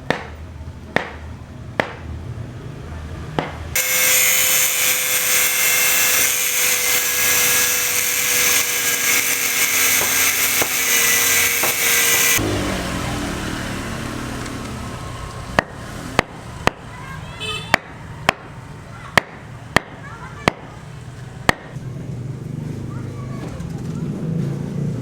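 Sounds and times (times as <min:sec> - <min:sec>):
power tool grinding: 0:03.8 - 0:12.6.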